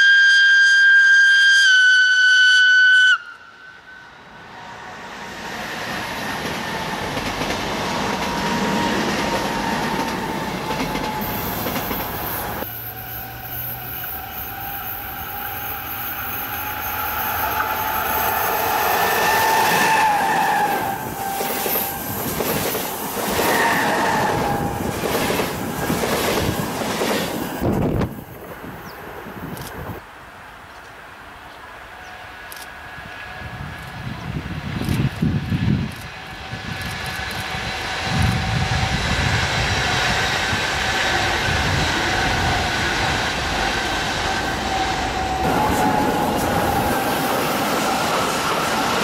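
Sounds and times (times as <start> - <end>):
train wheels rumbling on rail: 4.3 - 30.0, 31.6 - 49.0
wheels squealing: 4.5 - 26.7, 36.3 - 49.0.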